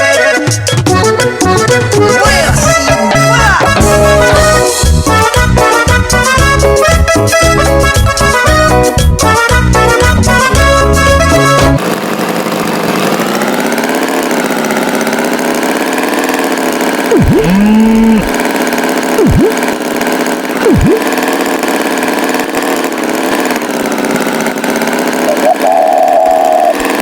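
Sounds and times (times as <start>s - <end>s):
tractor engine idling: 11.8s - 27.0s
swooping sound effects: 17.1s - 18.4s, 19.2s - 19.8s, 20.6s - 21.2s
short low steady tone: 17.2s - 18.3s.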